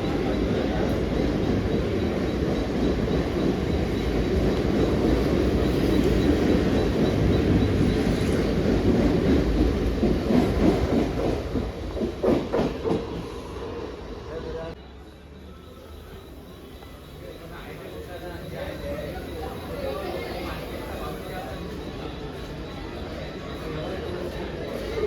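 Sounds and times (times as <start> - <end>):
train wheels rumbling on track: 0.0 - 14.8.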